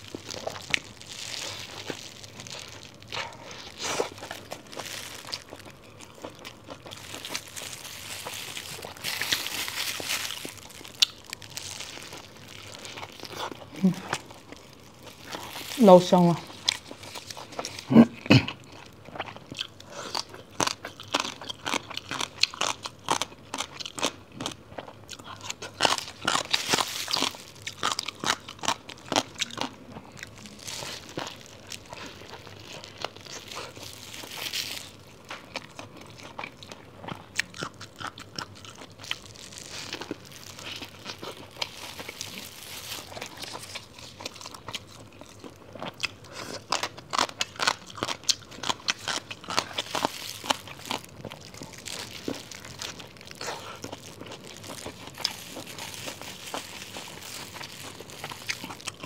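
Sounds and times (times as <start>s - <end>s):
person biting and chewing food: 0.0s - 59.0s.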